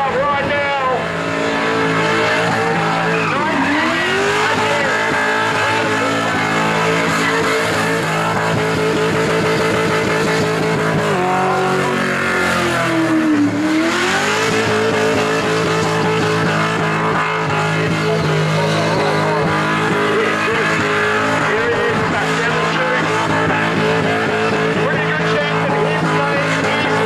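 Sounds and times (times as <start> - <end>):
car engine revving high: 0.0 - 27.0
tyre squeal: 1.4 - 10.6, 13.6 - 24.4.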